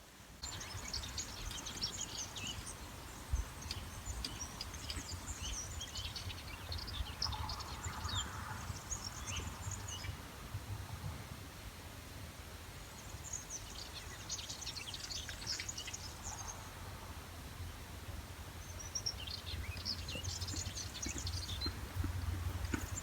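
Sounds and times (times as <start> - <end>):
songbird chirping: 18.6 - 23.0.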